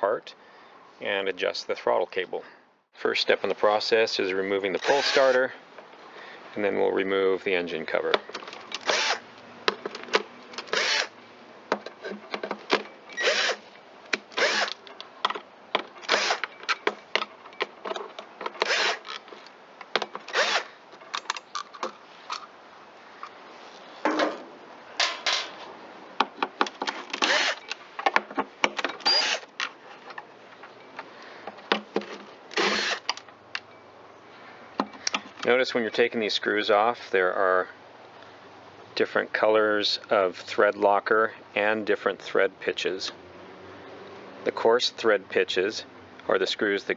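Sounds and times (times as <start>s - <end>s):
power driver spinning: 4.8s - 5.5s.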